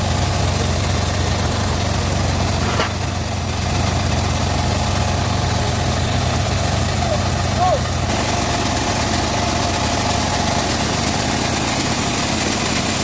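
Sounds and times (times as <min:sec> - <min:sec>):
band saw running: 0:00.0 - 0:13.0.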